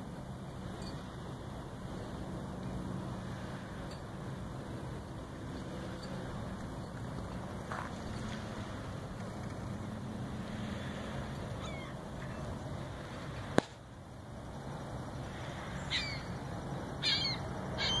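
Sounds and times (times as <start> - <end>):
short bird calls: 11.6 - 12.5, 15.8 - 16.4, 17.0 - 18.0.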